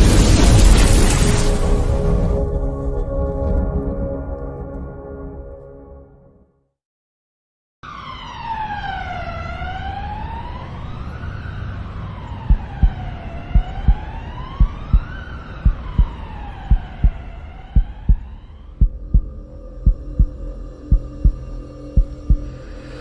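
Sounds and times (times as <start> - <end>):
siren wailing: 7.8 - 20.3
low rumble: 12.1 - 23.0
heartbeat thumps: 12.4 - 22.5.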